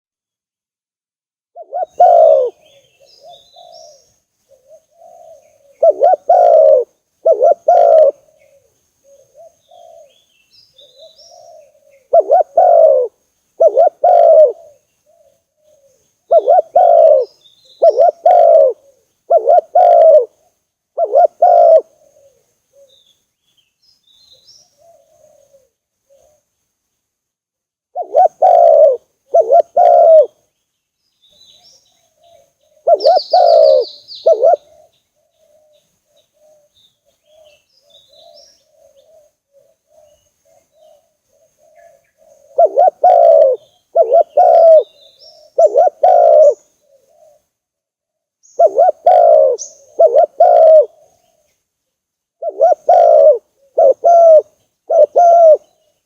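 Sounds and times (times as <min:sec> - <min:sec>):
dove cooing: 0:01.6 - 0:23.1, 0:24.4 - 0:26.5, 0:27.9 - 0:30.5, 0:31.4 - 0:47.6, 0:48.4 - 0:51.5, 0:52.4 - 0:55.9.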